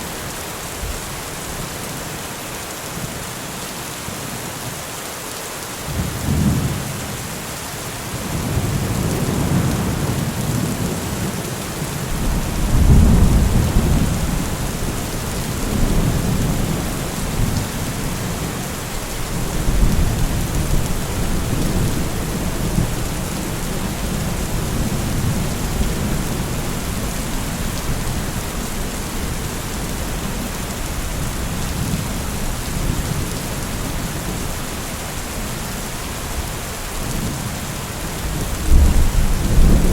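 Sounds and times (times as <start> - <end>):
steady rain: 0.0 - 39.9
rolling thunder: 12.1 - 18.4, 38.5 - 39.9.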